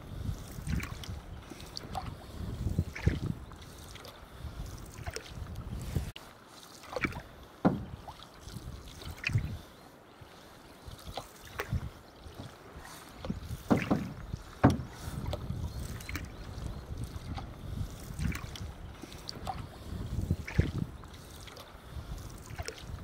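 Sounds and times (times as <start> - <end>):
wind rumble on microphone: 0.0 - 6.2, 7.0 - 9.7, 10.9 - 23.0
canoe paddles splashing in water: 0.0 - 23.0
sharp paddle knocks: 7.6 - 8.0, 13.7 - 15.0.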